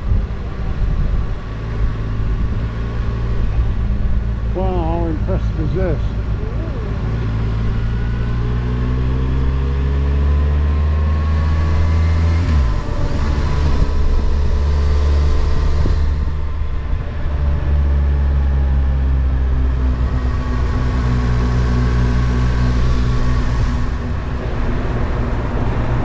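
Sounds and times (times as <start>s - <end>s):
road and wind rush: 0.0s - 26.0s
motorcycle engine running: 11.6s - 26.0s.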